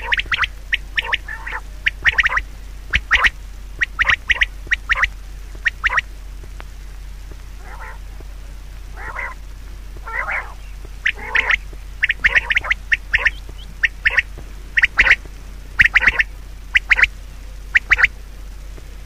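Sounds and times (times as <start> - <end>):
animal squawking: 0.0 - 6.0, 7.6 - 8.1, 8.9 - 9.4, 10.0 - 15.2, 15.8 - 17.1, 17.7 - 18.1
steady low hum: 0.0 - 19.0.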